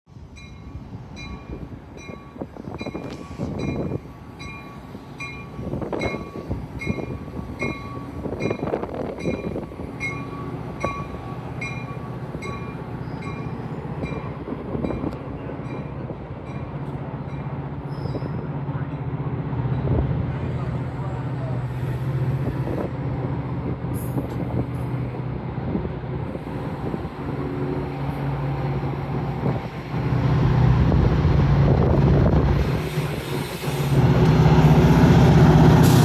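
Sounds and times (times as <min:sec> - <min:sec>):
diesel locomotive rumble: 0:00.1 - 0:36.0
train bell ringing: 0:00.3 - 0:19.1.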